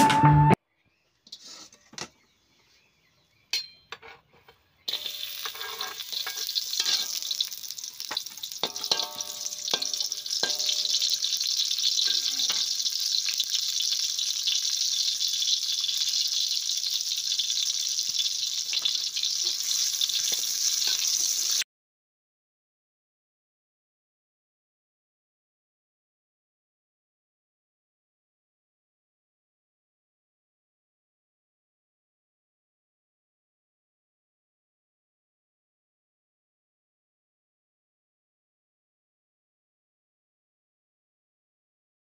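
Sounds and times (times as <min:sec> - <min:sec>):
spatula scraping a wok: 0:01.3 - 0:01.9, 0:04.0 - 0:21.6
shallots sizzling in oil: 0:04.8 - 0:21.6.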